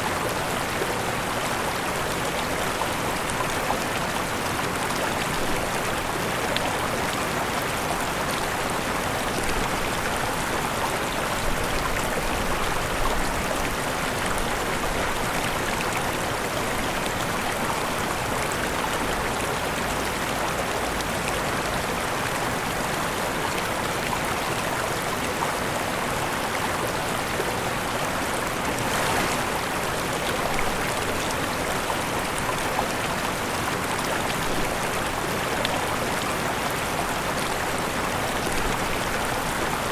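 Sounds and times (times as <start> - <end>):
waterfall rushing: 24.8 - 39.9.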